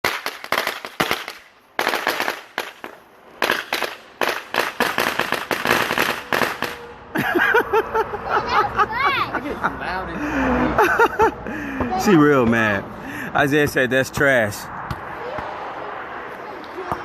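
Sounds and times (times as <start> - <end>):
firecrackers cracking: 0.0 - 6.9.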